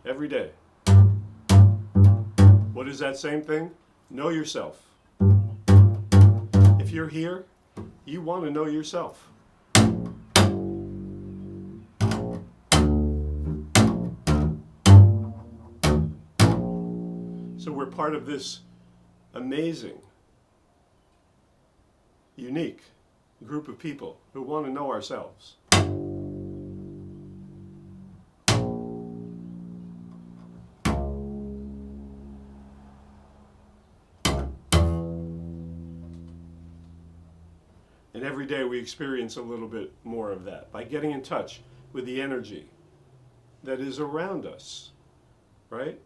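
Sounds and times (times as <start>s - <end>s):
low plucked string notes: 0.8s - 2.9s, 5.2s - 7.1s, 9.8s - 19.1s, 25.7s - 37.7s.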